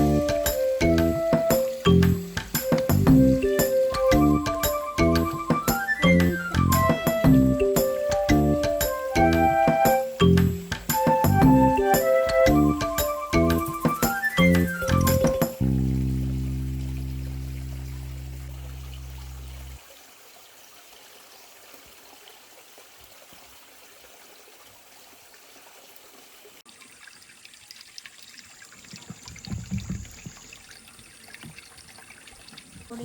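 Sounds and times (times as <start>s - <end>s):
dull low bumps: 0.0s - 7.6s, 29.0s - 30.5s
stream trickling: 0.0s - 33.0s.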